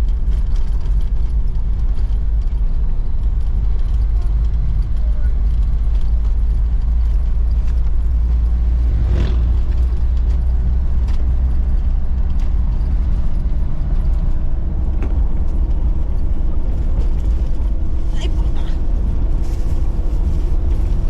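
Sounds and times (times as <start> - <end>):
vehicle engine and road noise: 0.0 - 21.0.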